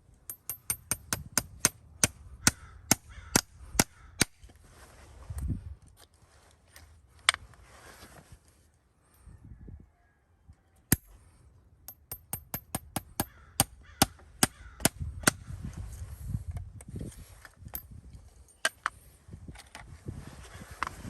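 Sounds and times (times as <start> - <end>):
hammer striking metal: 0.3 - 1.8, 11.9 - 13.7.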